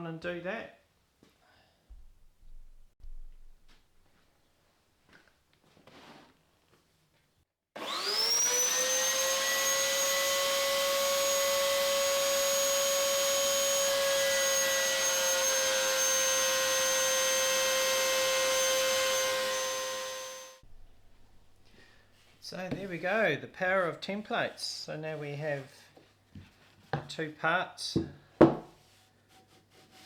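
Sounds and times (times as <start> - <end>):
electric router whine: 7.8 - 20.6.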